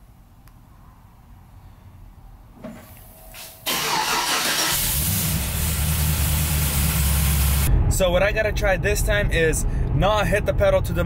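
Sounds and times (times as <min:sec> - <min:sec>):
car engine cranking and starting: 0:03.6 - 0:07.7
car engine idling: 0:03.7 - 0:07.7.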